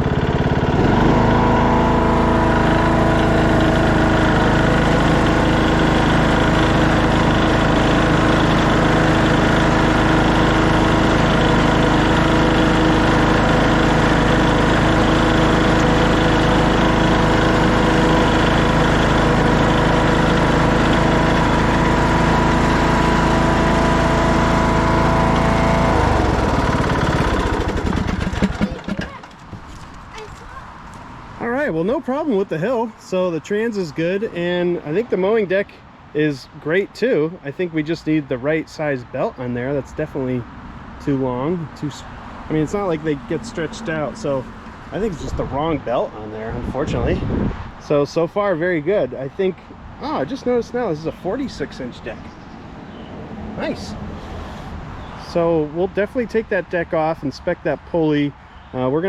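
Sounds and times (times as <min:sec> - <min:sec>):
lawn tractor engine running: 0:00.0 - 0:33.3, 0:41.0 - 0:47.0, 0:47.8 - 0:52.3.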